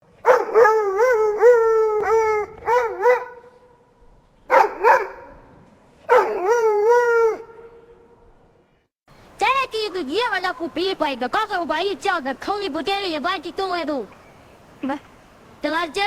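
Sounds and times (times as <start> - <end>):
dog howling and yelping: 0.4 - 3.3, 6.1 - 7.5.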